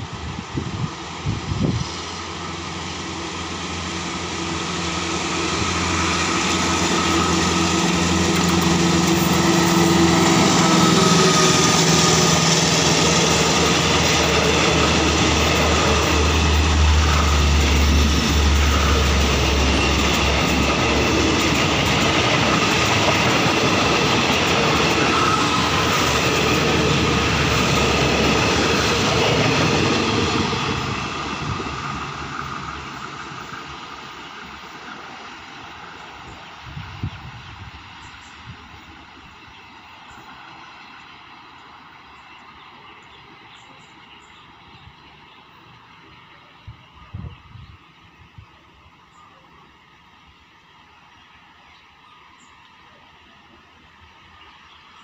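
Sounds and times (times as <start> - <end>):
locomotive engine hum: 0.0 - 47.1
train wheels clattering on track: 0.9 - 36.6.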